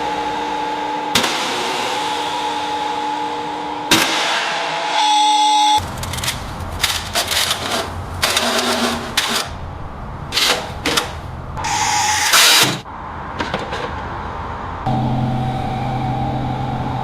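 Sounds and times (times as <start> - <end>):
steady low hum: 14.7 - 17.0.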